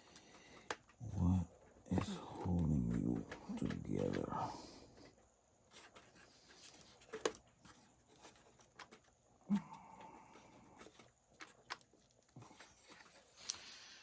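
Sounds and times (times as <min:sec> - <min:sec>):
small parts and tools clicking: 0:00.0 - 0:04.3.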